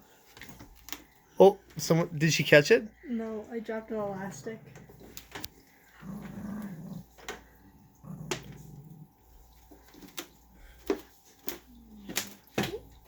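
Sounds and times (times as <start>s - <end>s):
small dog growling: 4.0s - 9.8s.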